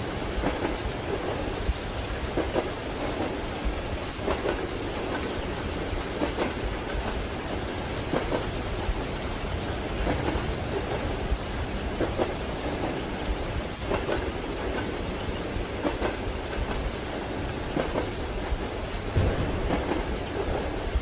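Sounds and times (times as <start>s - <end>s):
rain on a train: 0.0s - 21.0s
train rumble: 0.0s - 21.0s.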